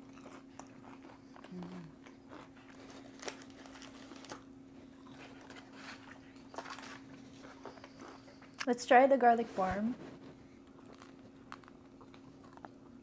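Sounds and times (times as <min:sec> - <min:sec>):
chewing fried chicken: 0:00.0 - 0:08.7, 0:10.0 - 0:13.0
faint steady hum: 0:00.0 - 0:13.0
plastic cups and paper rustling: 0:05.2 - 0:08.0.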